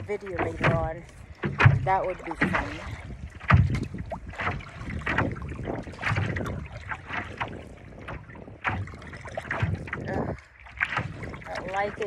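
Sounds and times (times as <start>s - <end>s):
paddle strokes splashing: 0.0s - 12.0s
small waves slapping board: 0.0s - 12.0s.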